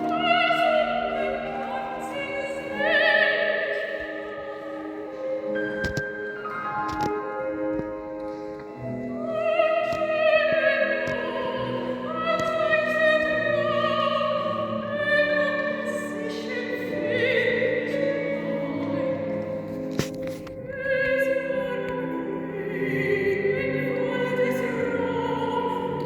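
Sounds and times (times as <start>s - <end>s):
woman singing operatically: 0.0s - 5.4s, 9.2s - 19.5s, 20.7s - 26.0s.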